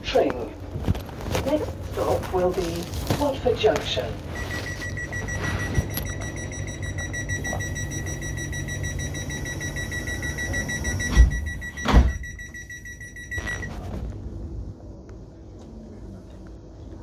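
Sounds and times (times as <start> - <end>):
low rumble: 13.1 - 17.0.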